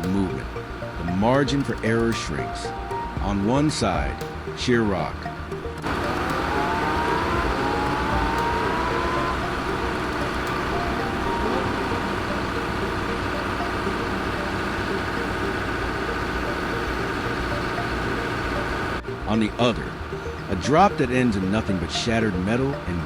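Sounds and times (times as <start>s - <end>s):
heavy diesel engine running: 5.3s - 23.0s.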